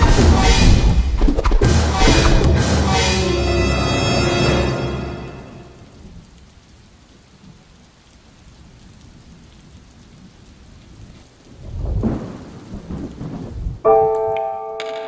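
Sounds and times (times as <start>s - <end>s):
thunder rumbling: 0.0s - 3.0s, 8.6s - 13.8s
rain hissing: 0.0s - 13.8s.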